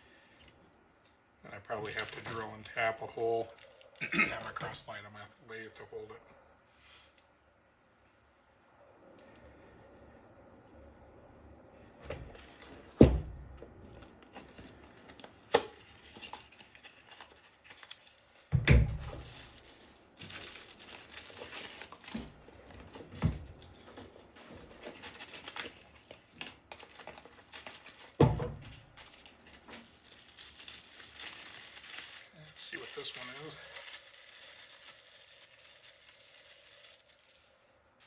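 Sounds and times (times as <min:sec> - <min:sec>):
packaging rustling and crinkling: 0:01.6 - 0:04.9, 0:12.1 - 0:38.0.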